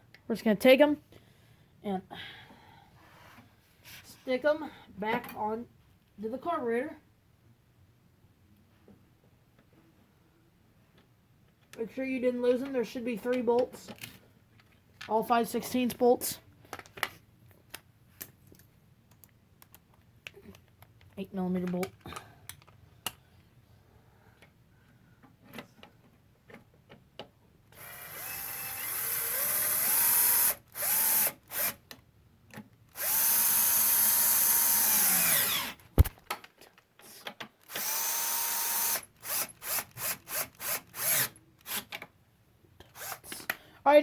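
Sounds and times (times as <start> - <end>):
power drill driving bolts: 27.8 - 31.8, 32.9 - 36.2, 37.6 - 42.0
sharp knock: 36.0 - 36.2.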